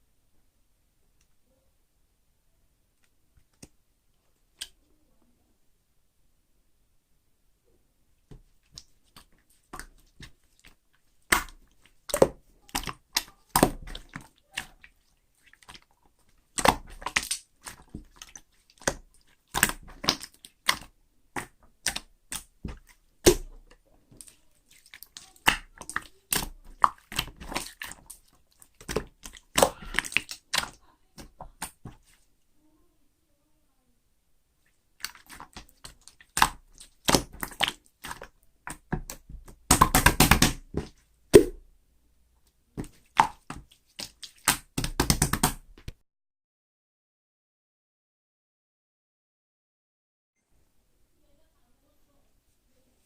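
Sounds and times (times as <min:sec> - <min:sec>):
slime clicking and popping: 0:11.3 - 0:14.8, 0:16.5 - 0:23.6, 0:24.2 - 0:32.0, 0:35.0 - 0:41.6, 0:42.8 - 0:45.8.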